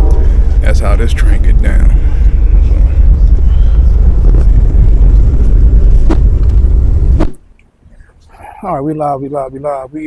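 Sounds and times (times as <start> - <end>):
train rumble: 0.0 - 7.3.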